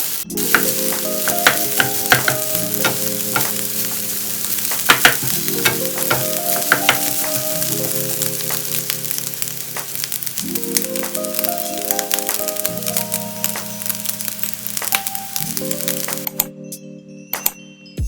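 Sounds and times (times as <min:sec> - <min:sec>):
food sizzling in oil: 0:00.0 - 0:16.4
soft background music: 0:00.0 - 0:18.0
taps against pan: 0:00.5 - 0:03.6, 0:04.7 - 0:07.6.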